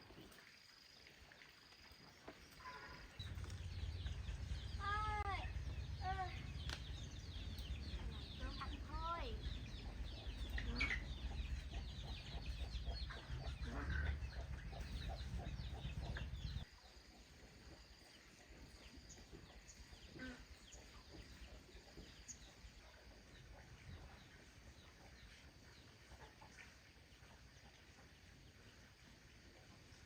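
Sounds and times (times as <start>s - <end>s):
low rumble: 3.2s - 16.6s
chickens clucking and chirping: 3.2s - 16.7s, 18.5s - 28.7s.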